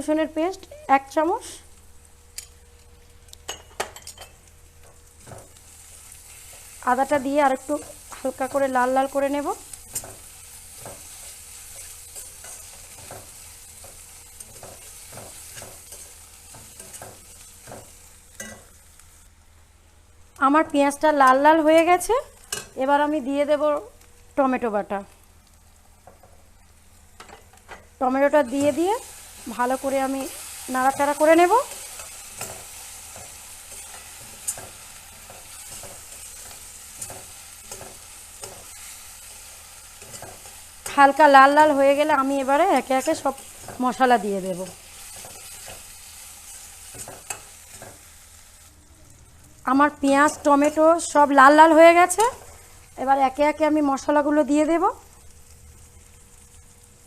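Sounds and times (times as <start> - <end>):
paste sizzling in oil: 4.9 - 19.4, 25.5 - 48.9.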